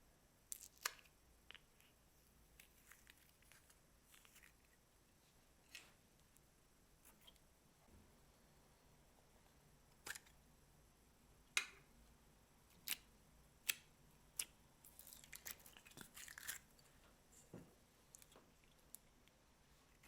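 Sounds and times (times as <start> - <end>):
slime popping and crackling: 0.5 - 1.7.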